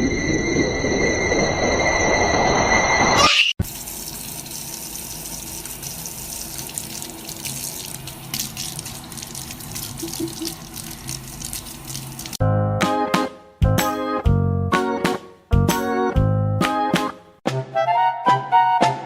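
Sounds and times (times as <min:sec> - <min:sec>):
water running from a tap: 0:03.6 - 0:12.4.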